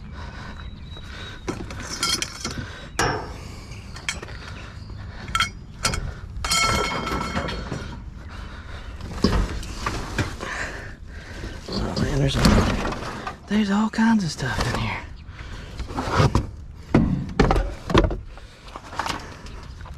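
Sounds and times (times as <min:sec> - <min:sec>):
sharp ringing knocks: 0:03.0 - 0:04.3
objects clattering in a dumpster: 0:05.9 - 0:08.1, 0:09.1 - 0:13.5, 0:15.9 - 0:19.3.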